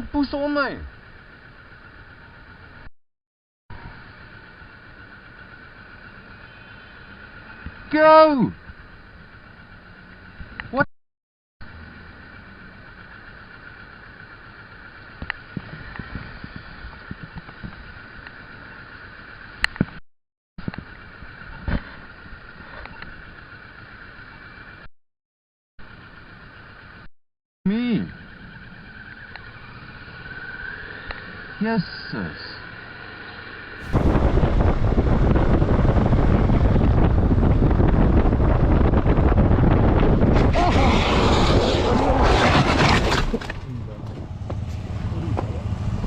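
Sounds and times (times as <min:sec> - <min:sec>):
motorcycle and road noise: 0:00.0 - 0:02.9, 0:03.7 - 0:10.8, 0:11.6 - 0:20.0, 0:20.6 - 0:24.9, 0:25.8 - 0:27.1, 0:27.9 - 0:46.0
wind buffeting microphone: 0:33.8 - 0:41.6.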